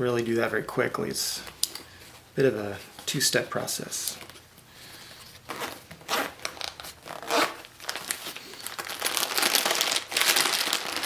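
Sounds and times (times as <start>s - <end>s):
fabric crinkling: 5.4s - 11.0s
zipper being pulled open: 5.5s - 6.4s, 7.1s - 7.6s.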